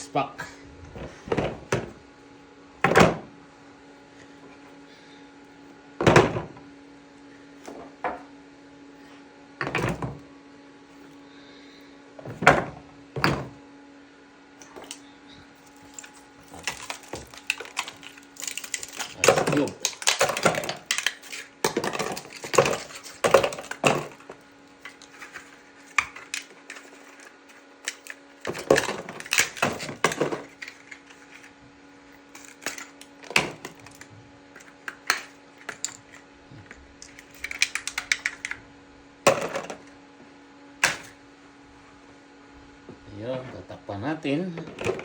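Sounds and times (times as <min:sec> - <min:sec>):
faint steady hum: 0:00.0 - 0:45.0
ice cubes clattering: 0:15.7 - 0:31.5, 0:32.3 - 0:34.0, 0:37.0 - 0:38.6.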